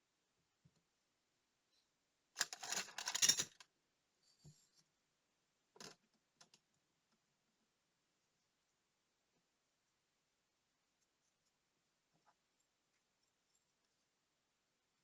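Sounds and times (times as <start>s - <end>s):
metal parts clattering: 2.4s - 3.6s.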